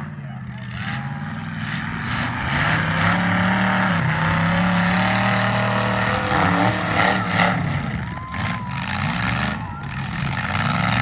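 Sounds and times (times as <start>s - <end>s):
car engines revving high: 0.0s - 11.0s.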